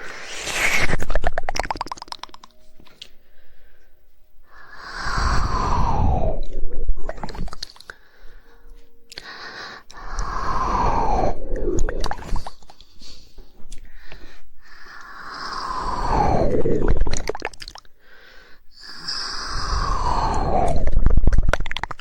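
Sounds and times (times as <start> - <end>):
tongue clicks: 1.0 - 3.2, 7.1 - 8.0, 9.1 - 9.3.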